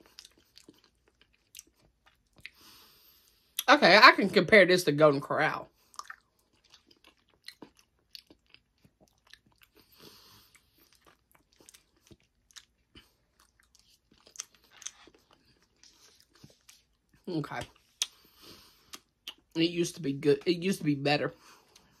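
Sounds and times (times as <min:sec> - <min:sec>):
person chewing wet mouth sounds: 0:00.0 - 0:02.8, 0:05.8 - 0:19.6.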